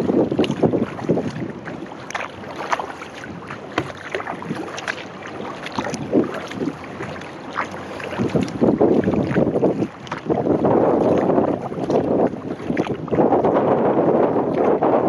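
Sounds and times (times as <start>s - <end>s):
kayak paddle splashing: 0.0s - 15.0s
water slapping at hull: 0.0s - 15.0s
wind buffeting microphone: 0.0s - 15.0s.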